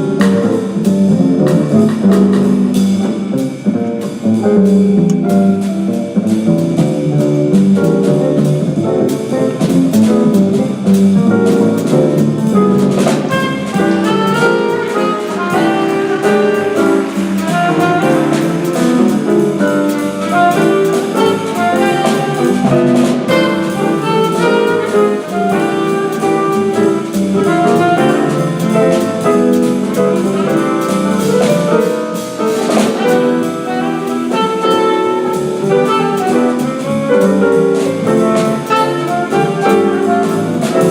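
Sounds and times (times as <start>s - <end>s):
bass: 0.0s - 40.9s
drum kit: 0.0s - 40.9s
piano: 0.0s - 40.9s
alto saxophone: 11.5s - 40.9s.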